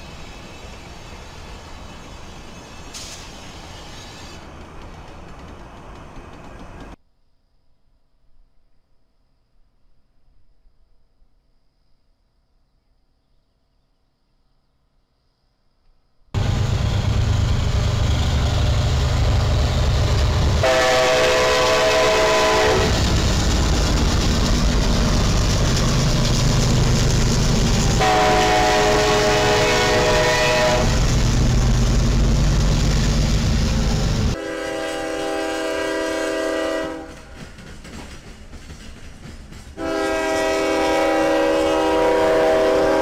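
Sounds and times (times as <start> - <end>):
diesel locomotives running past: 0.0 - 7.0, 16.4 - 43.0
distant train horn: 16.4 - 23.2, 27.7 - 31.2, 34.3 - 37.3, 39.8 - 43.0
locomotive horn blasts: 20.6 - 23.0, 27.9 - 31.1, 34.3 - 37.1, 39.8 - 43.0.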